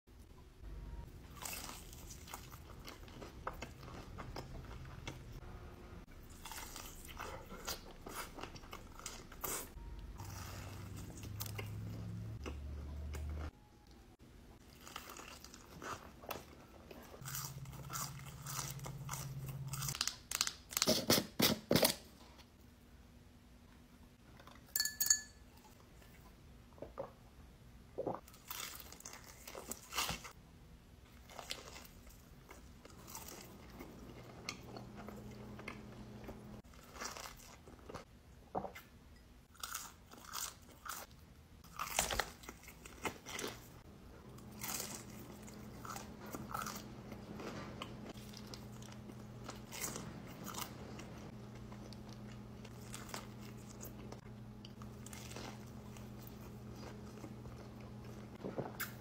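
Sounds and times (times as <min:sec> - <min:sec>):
crunchy bites and chewing: 0:39.5 - 0:59.0.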